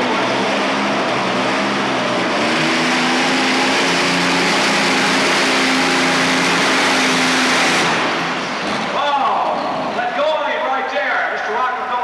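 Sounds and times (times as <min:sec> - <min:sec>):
loud aircraft engine running hard: 0:00.0 - 0:08.9.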